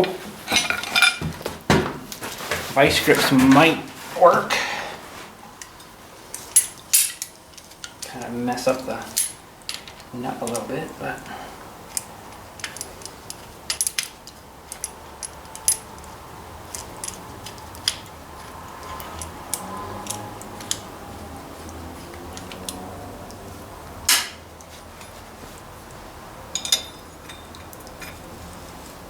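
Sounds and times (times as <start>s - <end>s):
hand tools clinking on metal: 0.0s - 1.3s, 5.6s - 23.5s, 26.4s - 28.8s.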